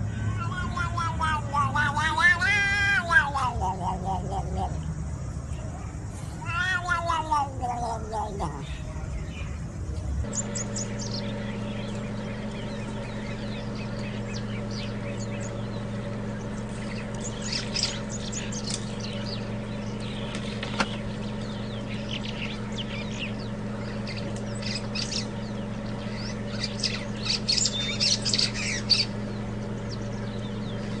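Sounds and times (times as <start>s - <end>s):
birds chirping and squawking: 0.0s - 31.0s
low hum: 7.9s - 31.0s.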